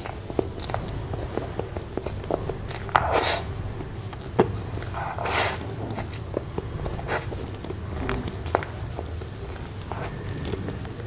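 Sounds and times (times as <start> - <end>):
wet chewing and lip smacking: 0.0 - 11.0
breathy hissing bursts: 3.0 - 3.6, 4.5 - 6.3.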